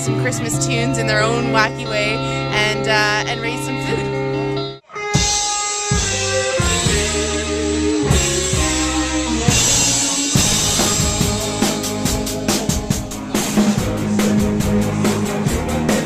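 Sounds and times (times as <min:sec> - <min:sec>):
rock band playing: 0:00.0 - 0:16.0
drum kit: 0:05.0 - 0:16.0.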